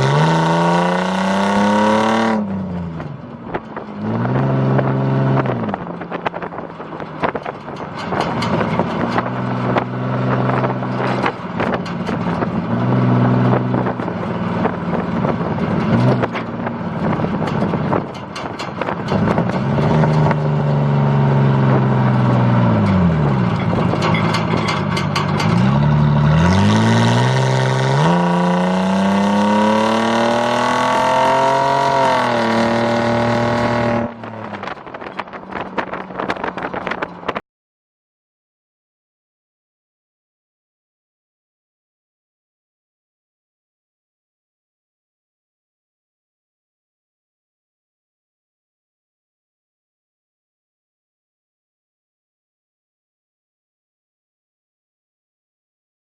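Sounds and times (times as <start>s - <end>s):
truck engine revving: 0.0s - 37.3s.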